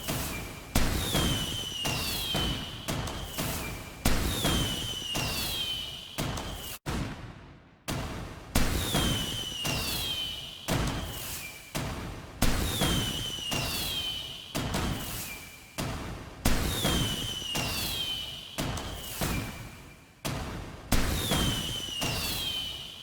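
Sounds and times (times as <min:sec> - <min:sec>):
fireworks whistling down in pitch: 0:00.0 - 0:06.8, 0:08.6 - 0:15.8, 0:16.5 - 0:20.0, 0:21.0 - 0:23.0
fireworks banging: 0:00.0 - 0:07.4.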